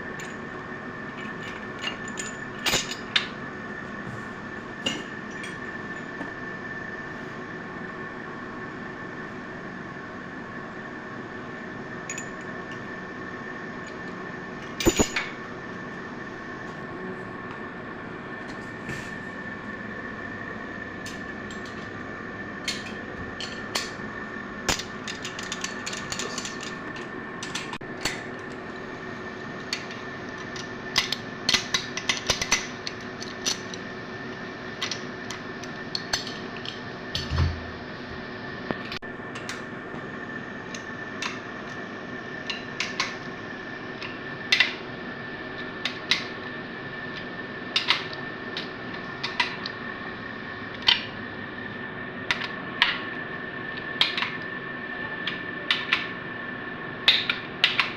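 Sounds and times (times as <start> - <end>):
steady background hum: 0.0 - 57.9
tools and metal parts clinking: 1.1 - 3.3, 14.8 - 15.3, 24.7 - 28.2.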